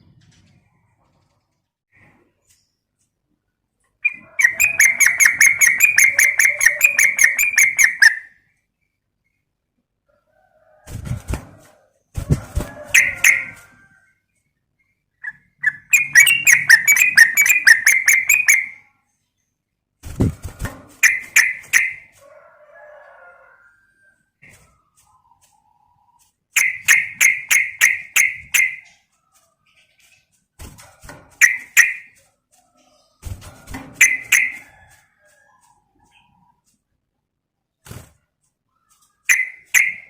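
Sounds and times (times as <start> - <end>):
bird harsh chattering: 4.0 - 8.3, 15.2 - 18.8, 26.6 - 28.9
bird trilling: 4.0 - 8.3, 15.2 - 18.8, 34.0 - 34.6.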